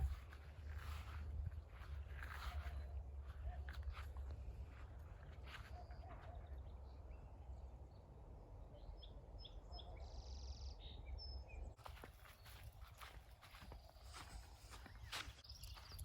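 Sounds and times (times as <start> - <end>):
footsteps: 0.0 - 6.3, 11.8 - 16.0
birds chirping: 0.0 - 16.0.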